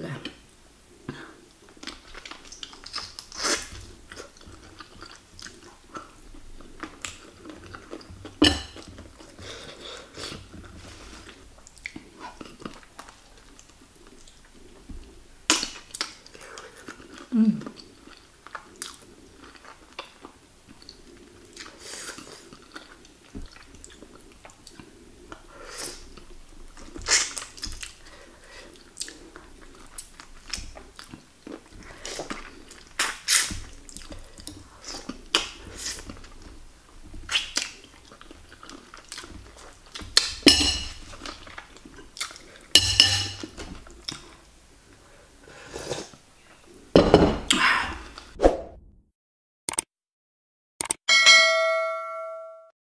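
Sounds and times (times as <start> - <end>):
person chewing and biting: 37.3 - 42.6.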